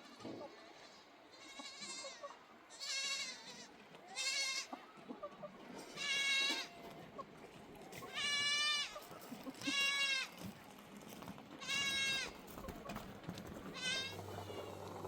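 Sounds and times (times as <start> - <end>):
livestock bleating: 0.0 - 4.8, 5.9 - 6.8, 8.1 - 9.0, 9.6 - 10.3, 11.6 - 12.4, 13.8 - 14.8.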